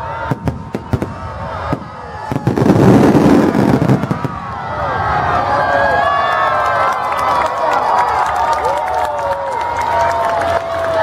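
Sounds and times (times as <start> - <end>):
fireworks bursting: 0.2 - 4.6.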